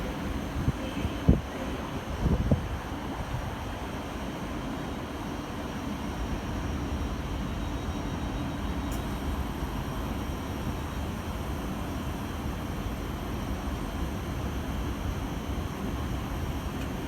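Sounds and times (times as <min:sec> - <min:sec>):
train rumbling: 0:00.0 - 0:02.6.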